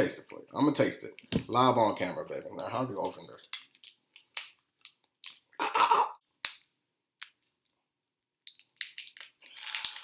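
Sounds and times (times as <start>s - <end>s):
crackling plastic tear: 8.4s - 10.0s.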